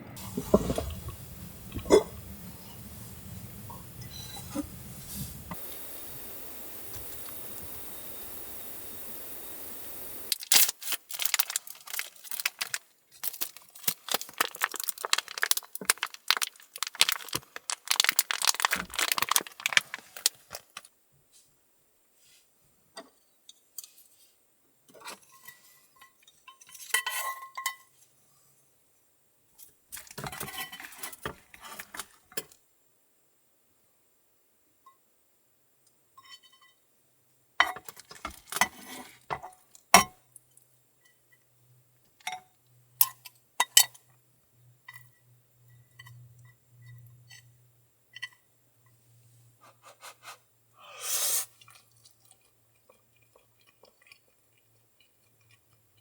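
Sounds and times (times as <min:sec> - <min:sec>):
small hard objects clinking: 0:10.3 - 0:20.9.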